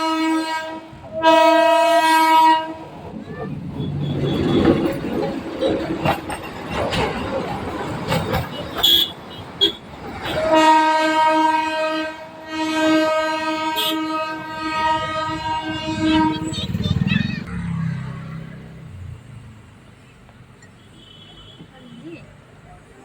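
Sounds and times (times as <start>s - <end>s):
train horn blast: 0.0s - 3.0s, 8.8s - 16.7s
train rattling along rails: 0.0s - 23.0s.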